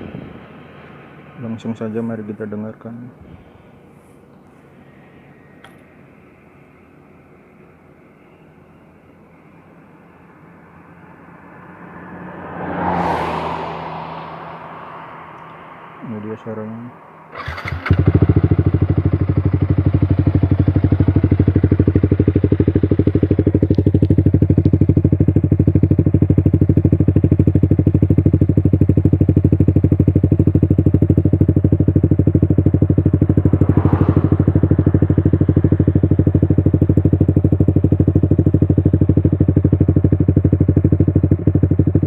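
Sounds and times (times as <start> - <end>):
motorcycle engine idling: 17.3 - 42.0.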